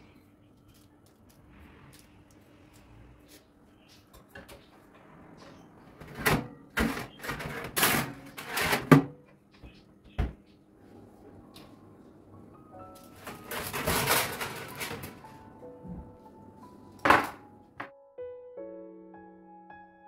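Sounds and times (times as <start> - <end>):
rustling scrapes and clatters: 5.4 - 9.1, 13.0 - 15.4.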